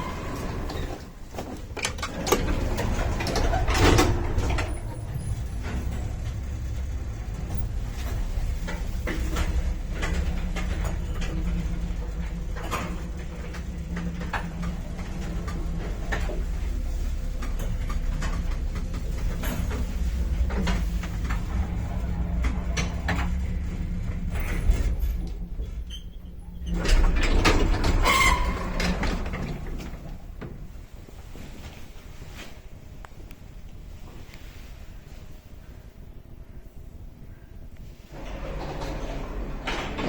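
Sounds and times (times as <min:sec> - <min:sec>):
lift motor humming: 0:00.0 - 0:30.4, 0:38.1 - 0:40.0
lift car rattling and clicking: 0:00.0 - 0:31.0, 0:38.1 - 0:40.0
clatter with short squeal: 0:27.9 - 0:29.0.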